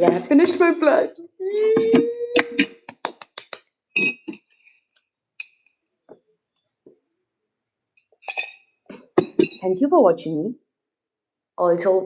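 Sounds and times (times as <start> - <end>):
tableware clinking: 4.0 - 5.8, 8.0 - 9.8.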